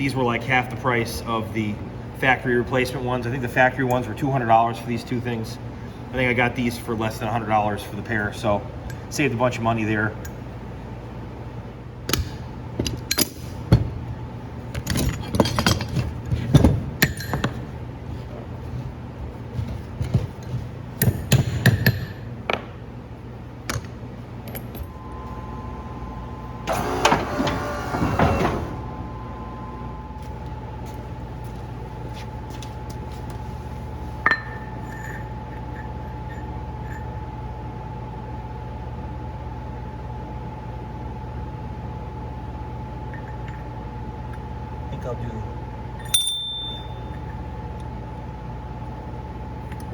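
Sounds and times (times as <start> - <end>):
steady low hum: 0.0 - 49.9
metal parts clinking and knocking: 14.7 - 17.7.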